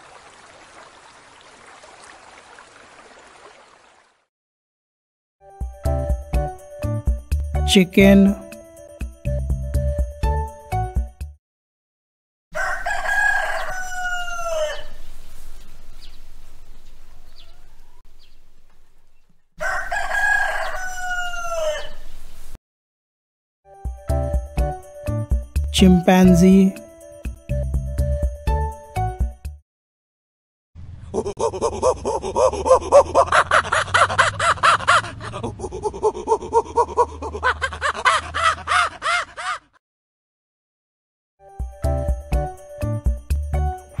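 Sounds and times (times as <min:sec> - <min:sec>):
rooster crowing: 0:12.5 - 0:15.0, 0:17.0 - 0:18.0, 0:19.6 - 0:22.1
chimpanzee hooting: 0:31.2 - 0:39.8.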